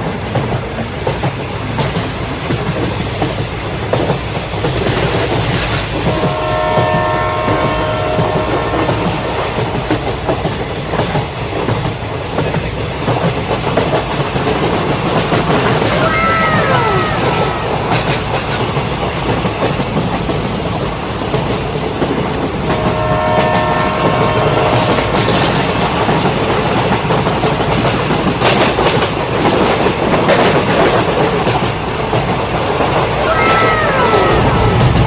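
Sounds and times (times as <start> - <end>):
train rumbling clatter: 0.0 - 35.0
train horn chord: 6.0 - 10.4, 22.7 - 25.9.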